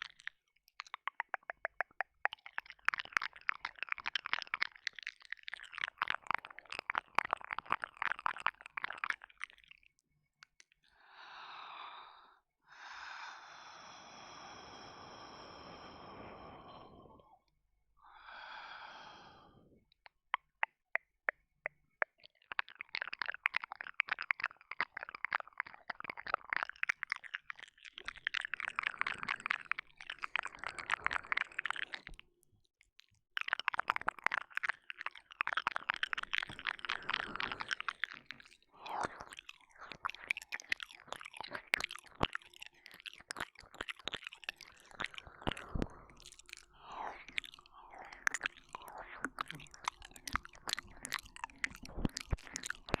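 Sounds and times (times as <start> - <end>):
wet mouth clicks and kissing: 0.0 - 10.8, 20.0 - 32.2, 33.0 - 53.0
breathy exhale: 11.0 - 17.4, 18.0 - 19.7.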